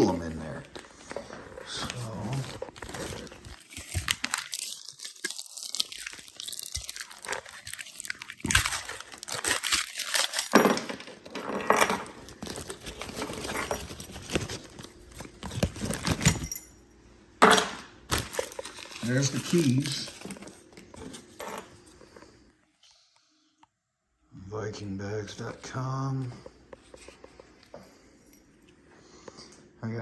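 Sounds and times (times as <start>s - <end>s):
packet tearing and crinkling: 1.6s - 10.6s, 12.2s - 16.3s, 18.1s - 20.4s.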